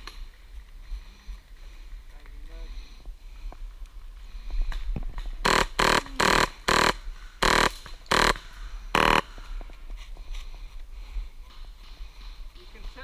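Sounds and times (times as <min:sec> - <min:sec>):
airsoft rifle full-auto bursts: 0:05.4 - 0:09.3.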